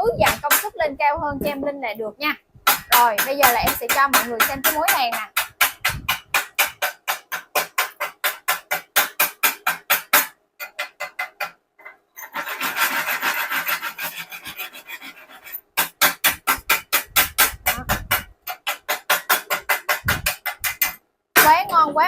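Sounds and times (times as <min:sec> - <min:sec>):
wire brush scrubbing metal: 0:12.2 - 0:21.6.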